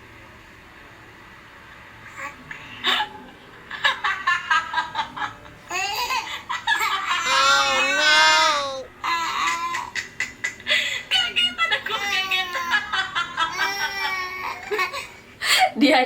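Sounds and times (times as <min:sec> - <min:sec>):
baby laughing and squealing: 0:05.7 - 0:09.9.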